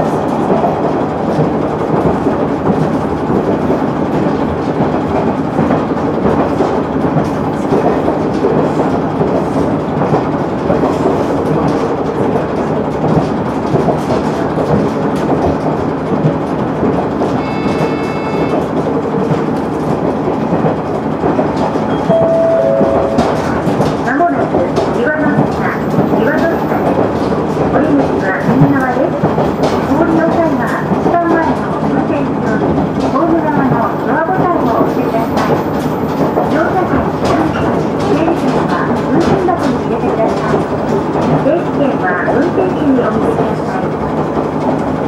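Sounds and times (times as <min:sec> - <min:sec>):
railcar running rumble: 0:00.0 - 0:45.0
high ringing tone: 0:21.9 - 0:23.6.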